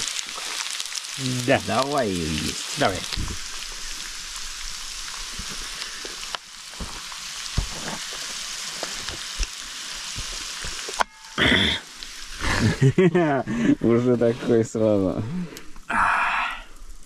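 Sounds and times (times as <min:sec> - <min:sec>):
fish sizzling in hot oil: 0:00.0 - 0:13.2.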